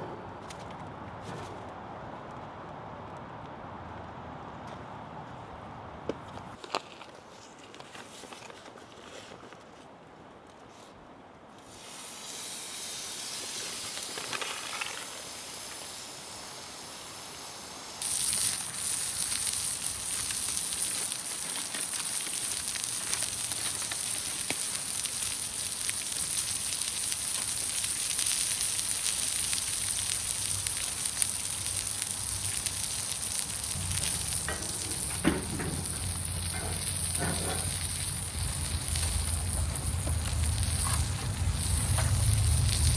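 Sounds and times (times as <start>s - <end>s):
small crackles: 6.6s - 11.0s, 13.7s - 16.1s, 18.0s - 42.9s
soft hiss: 11.5s - 42.9s
food sizzling in a pan: 11.8s - 42.9s.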